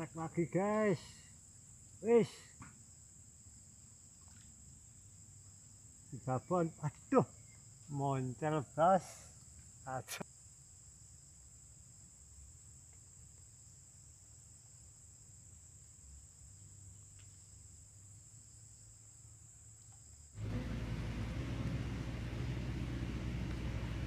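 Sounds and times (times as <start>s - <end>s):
crickets chirring: 0.0s - 24.0s
loud low rumbling: 20.4s - 24.0s.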